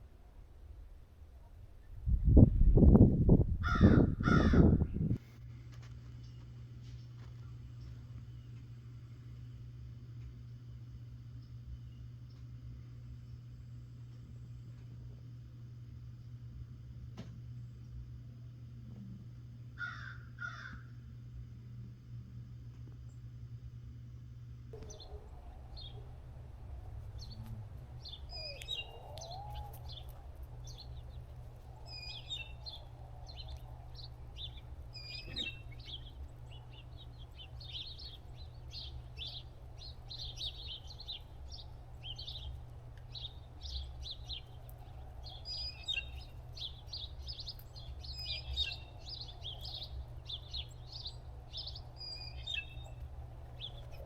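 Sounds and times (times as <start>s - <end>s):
small birds chirping: 6.0s - 15.1s, 24.8s - 54.0s
low rumble: 20.9s - 54.0s.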